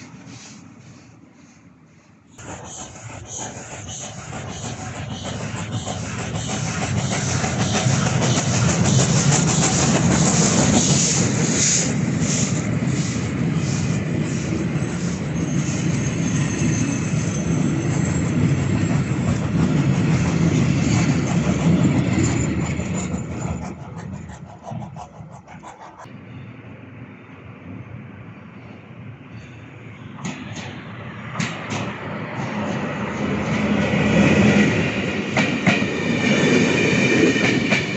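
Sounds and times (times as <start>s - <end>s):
train wheels clicking on rails: 0.0s - 26.1s, 29.4s - 37.9s.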